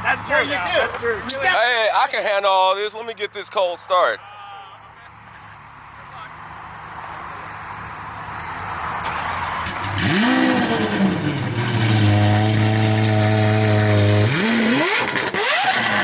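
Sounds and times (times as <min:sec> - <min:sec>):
car engine starting and revving: 0:07.7 - 0:16.0.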